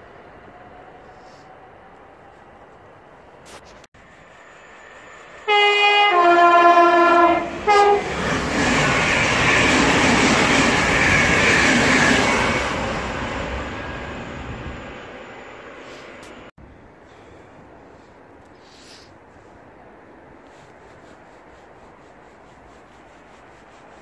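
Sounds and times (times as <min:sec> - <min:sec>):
train rushing past: 0:00.0 - 0:03.4, 0:04.0 - 0:16.5
two-tone train horn: 0:05.4 - 0:08.2.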